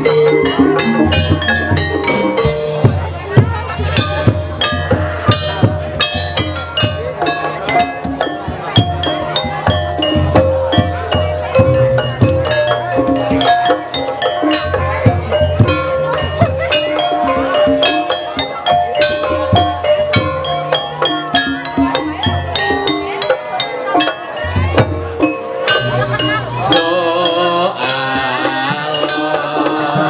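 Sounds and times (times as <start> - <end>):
gamelan music: 0.0 - 30.0.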